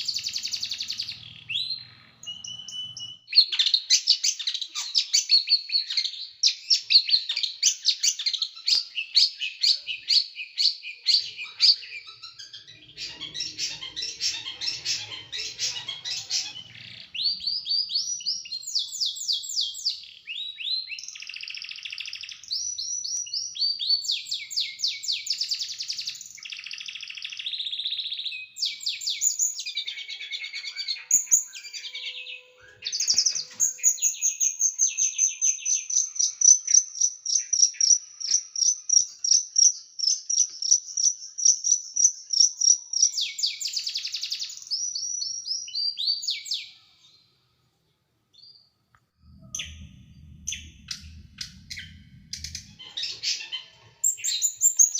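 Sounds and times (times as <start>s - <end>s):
songbird singing rapid sharp notes: 0.0s - 46.8s.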